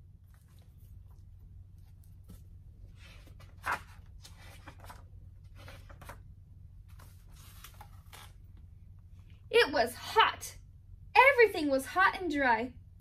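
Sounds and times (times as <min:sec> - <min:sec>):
low room hum: 0:00.0 - 0:13.0
paper pages rustling: 0:01.8 - 0:06.2, 0:06.8 - 0:08.5.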